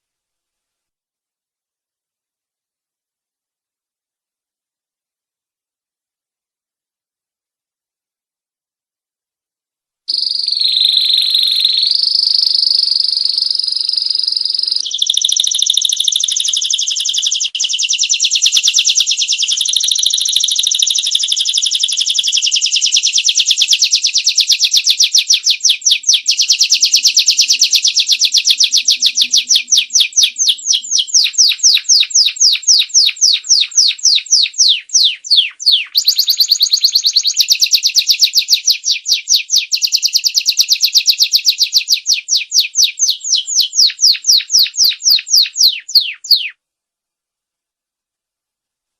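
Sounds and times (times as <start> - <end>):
canary singing trills: 10.1 - 46.6.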